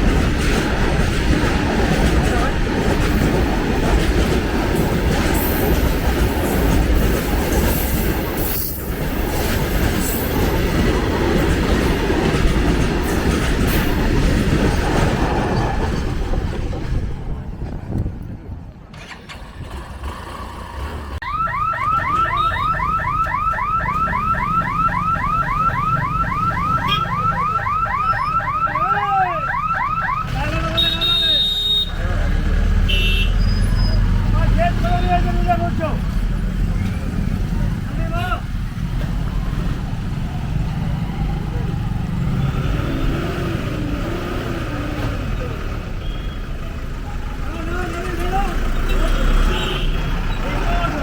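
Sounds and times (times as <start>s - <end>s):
wagon wheels clattering on rails: 0.0s - 17.2s
freight train rumbling past: 0.0s - 21.2s, 31.9s - 51.0s
electronic alarm rising chirps: 21.2s - 30.2s.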